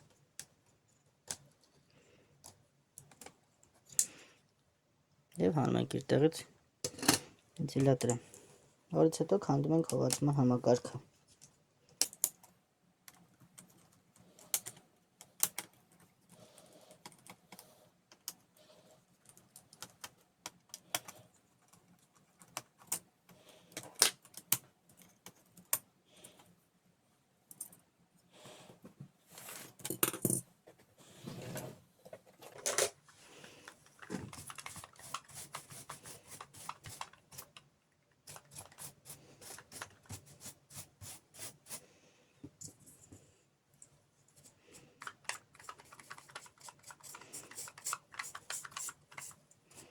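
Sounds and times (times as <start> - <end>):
screwdriver and metal parts clicking: 45.0 - 49.4.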